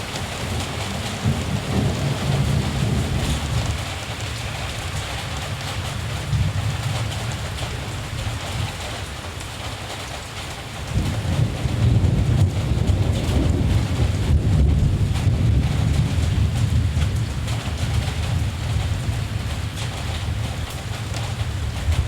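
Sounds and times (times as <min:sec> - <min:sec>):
steady rain falling: 0:00.0 - 0:22.0
distant thunder rumbling: 0:00.1 - 0:03.8, 0:10.9 - 0:22.0.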